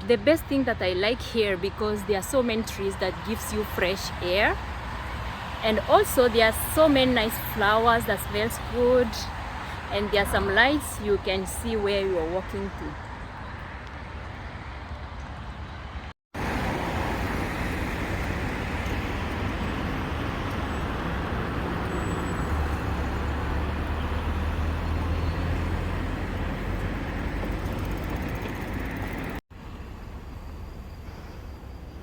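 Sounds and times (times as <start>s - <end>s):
road traffic tyres and engines: 0.0s - 32.0s
large vehicle rumble: 16.4s - 32.0s.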